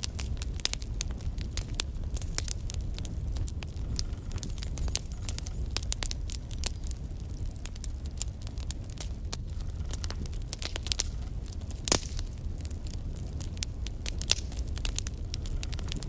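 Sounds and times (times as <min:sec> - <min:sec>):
fireplace logs crackling and popping: 0:00.0 - 0:16.0.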